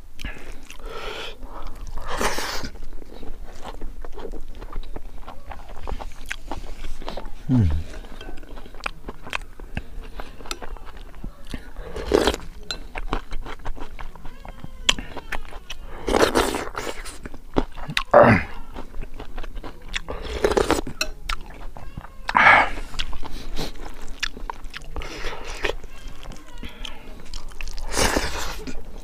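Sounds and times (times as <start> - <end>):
chewing and crunching: 0.0 - 29.0
loud mouth noises: 7.2 - 8.2.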